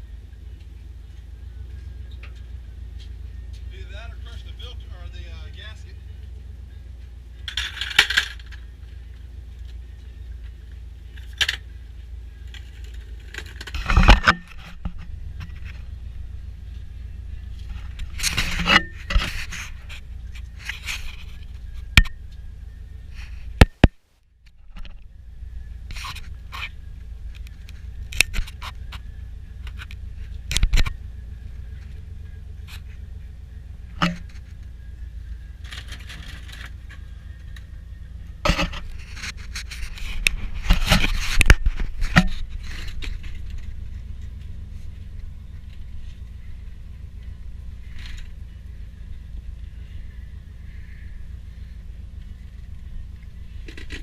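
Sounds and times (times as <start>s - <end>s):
steady low hum: 0.0s - 54.0s
metal tools clinking and scraping: 7.4s - 8.7s, 12.4s - 16.0s, 17.5s - 22.2s, 35.6s - 37.5s.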